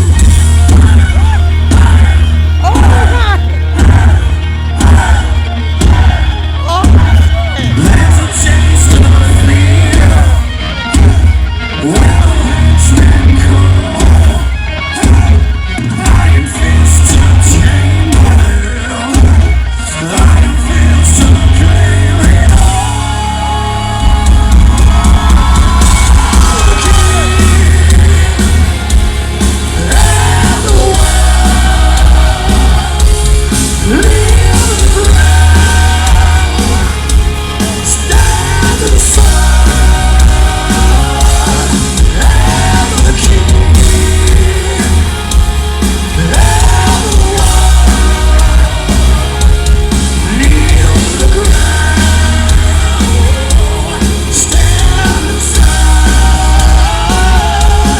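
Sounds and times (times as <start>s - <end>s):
live heavy metal band: 0.0s - 57.9s
person singing and shouting: 0.7s - 10.5s, 11.7s - 28.9s.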